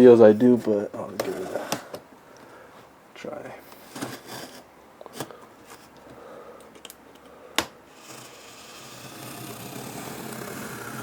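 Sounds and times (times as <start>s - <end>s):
cardboard packaging rustling and scraping: 1.2s - 1.8s, 3.8s - 6.0s, 7.9s - 11.0s.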